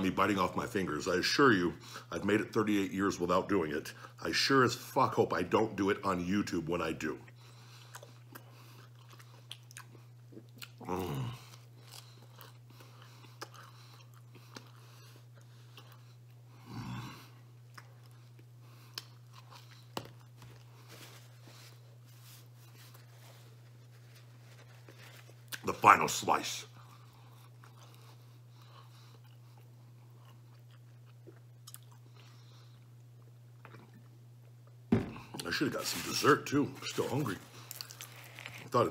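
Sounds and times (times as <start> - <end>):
steady low hum: 0.0 - 38.9
man chewing crunchy crust: 7.3 - 25.8, 26.7 - 34.7, 36.8 - 38.9.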